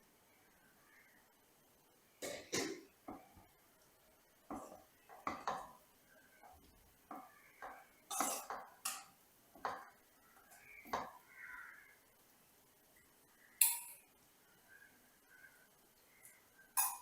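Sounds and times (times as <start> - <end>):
utensils clinking against dishes: 8.1 - 9.1, 16.8 - 17.0.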